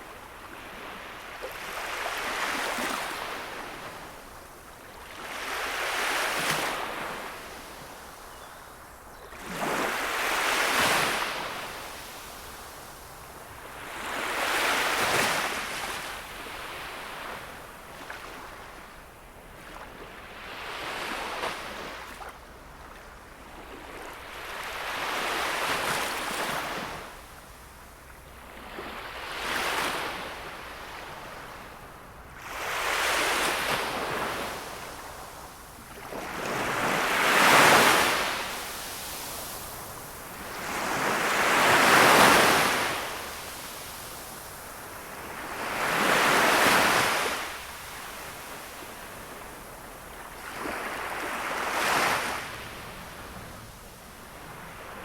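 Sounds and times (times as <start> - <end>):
sea waves washing ashore: 32.4 - 55.0.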